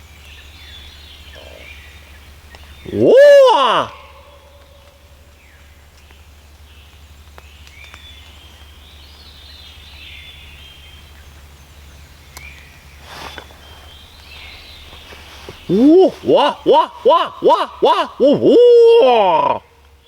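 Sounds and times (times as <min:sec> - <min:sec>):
songbirds chirping and trilling: 0:00.0 - 0:20.0
brief rustle: 0:13.0 - 0:15.7.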